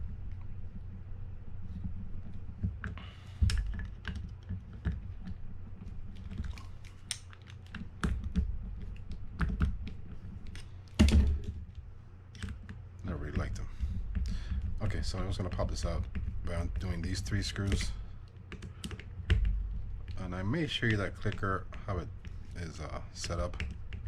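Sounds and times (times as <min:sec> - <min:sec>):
heavier thump: 0:11.0 - 0:11.6.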